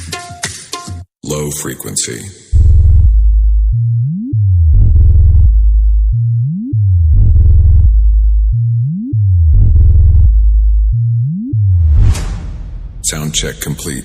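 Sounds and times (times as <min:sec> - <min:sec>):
deep synthesizer bass notes: 0:02.6 - 0:14.0
quick rising sweep: 0:11.7 - 0:13.4.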